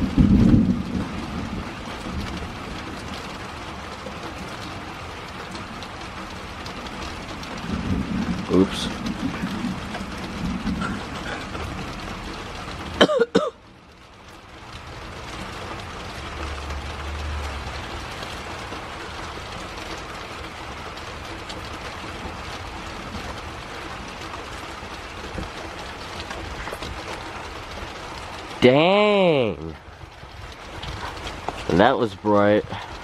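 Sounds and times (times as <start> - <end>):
steady rain: 0.0 - 33.0
person coughing: 13.0 - 13.6.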